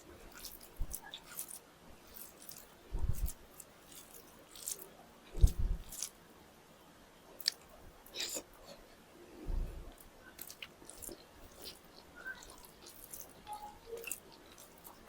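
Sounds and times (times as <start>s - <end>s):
chewing and biting food: 0.2s - 6.2s, 7.4s - 8.8s, 10.0s - 15.0s
soft low thuds: 5.4s - 5.8s, 9.4s - 9.9s.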